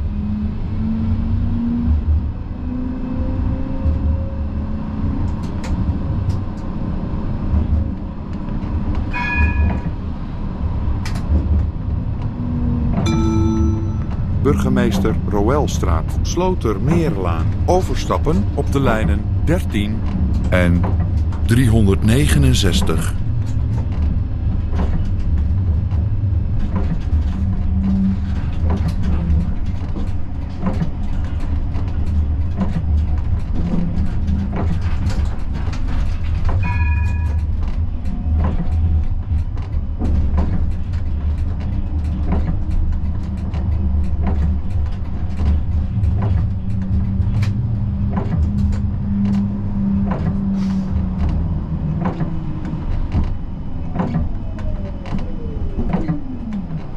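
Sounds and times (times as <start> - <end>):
tram rumbling: 0.0 - 56.9
short electronic beep: 13.1 - 14.5.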